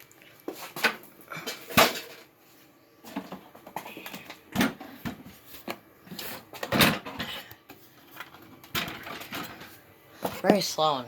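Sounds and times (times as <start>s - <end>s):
knocks and clunks of handled objects: 3.0s - 10.7s.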